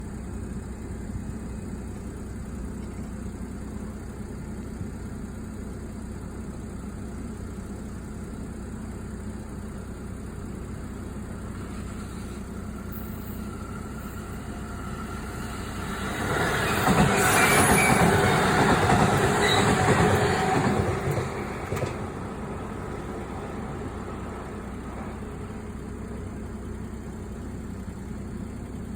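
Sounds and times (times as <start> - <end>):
low hum: 10.8 - 28.8
electric train passing: 11.4 - 27.5.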